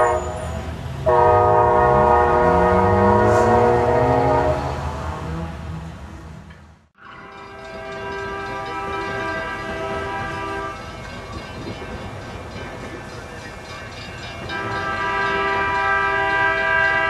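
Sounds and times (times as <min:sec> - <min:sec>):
diesel locomotive horn: 0:00.0 - 0:06.0, 0:07.0 - 0:10.9, 0:14.5 - 0:17.0
rumble of passing train: 0:00.0 - 0:17.0.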